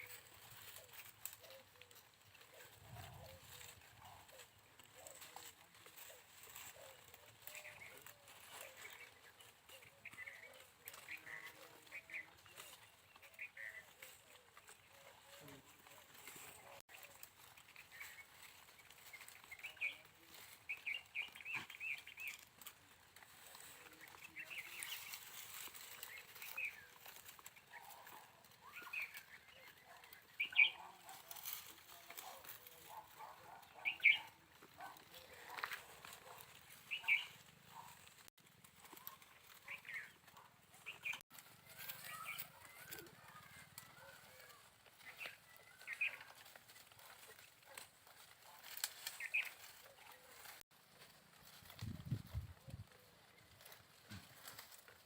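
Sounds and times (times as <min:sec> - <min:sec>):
small bird chirping: 0:23.9 - 0:30.9, 0:33.7 - 0:34.4, 0:36.2 - 0:38.0, 0:39.0 - 0:46.3, 0:49.1 - 0:49.6.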